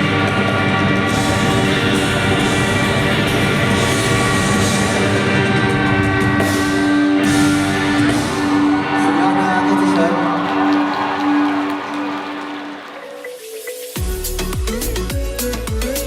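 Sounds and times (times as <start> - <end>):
electric guitar: 0.0 - 12.0
live rock band playing: 0.0 - 12.1
drums: 0.0 - 16.0.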